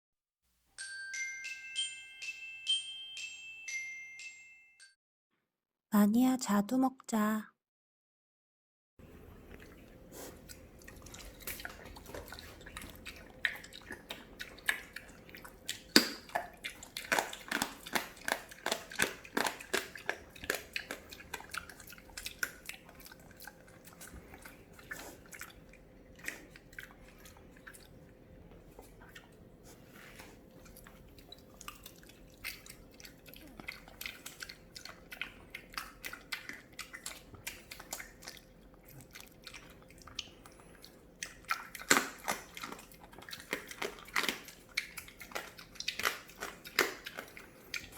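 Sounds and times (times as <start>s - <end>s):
pig chewing with smacking clicks: 9.5s - 29.5s, 30.2s - 47.9s.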